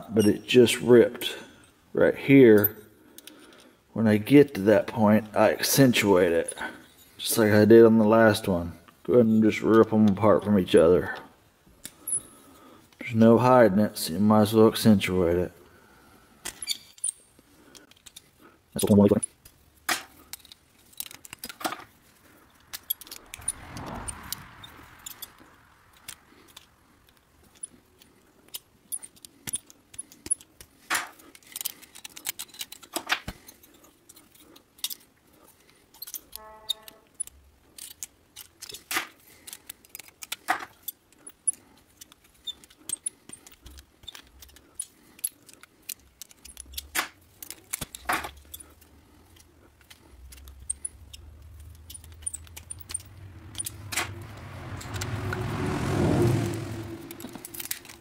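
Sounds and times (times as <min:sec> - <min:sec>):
metallic clicks and clinks: 0:16.4 - 0:58.0
brief squeak: 0:16.6 - 0:17.0, 0:36.3 - 0:37.1.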